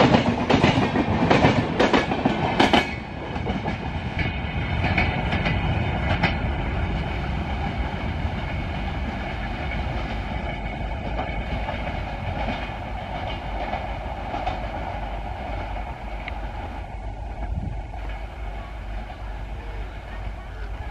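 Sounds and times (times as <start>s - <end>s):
train rumble: 0.0s - 20.9s
train wheels clattering on rails: 0.0s - 20.9s
sharp rail clicks: 11.1s - 19.2s.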